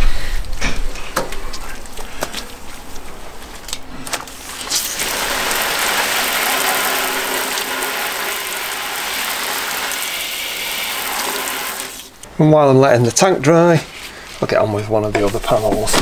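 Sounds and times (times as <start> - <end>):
water hissing from hose spray gun: 4.4 - 12.1.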